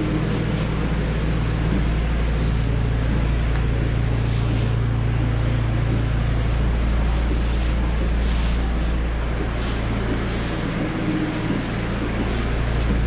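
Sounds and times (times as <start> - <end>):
pressure washer engine running: 0.0 - 13.0.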